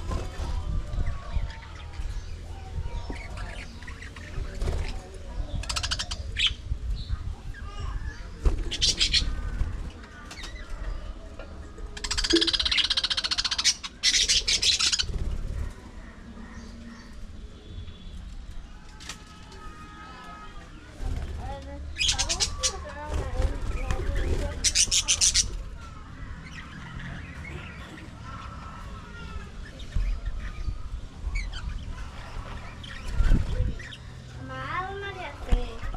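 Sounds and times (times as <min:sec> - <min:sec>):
budgerigars chirping and chattering: 0:00.0 - 0:11.2, 0:11.9 - 0:17.3, 0:21.9 - 0:34.2
budgerigars chattering: 0:05.6 - 0:06.6, 0:12.0 - 0:15.7, 0:24.6 - 0:25.6.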